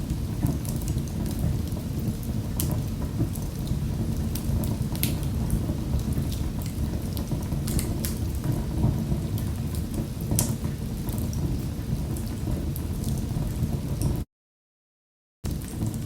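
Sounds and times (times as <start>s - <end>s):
fire crackling in fireplace: 0.0s - 14.2s, 15.5s - 16.0s.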